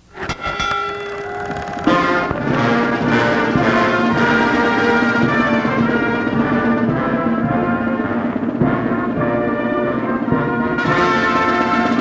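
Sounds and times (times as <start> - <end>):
held brass chords: 0.6 - 12.0
timpani-like drum hits: 1.4 - 7.6.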